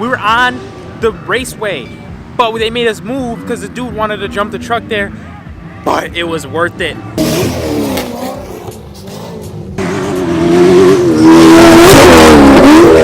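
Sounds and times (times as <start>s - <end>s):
truck engine revving: 7.0s - 13.0s.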